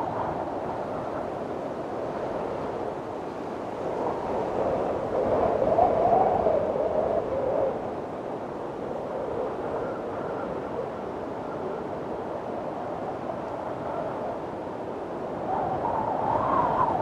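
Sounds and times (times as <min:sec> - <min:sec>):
wind blowing with whistling tone: 0:00.0 - 0:17.0.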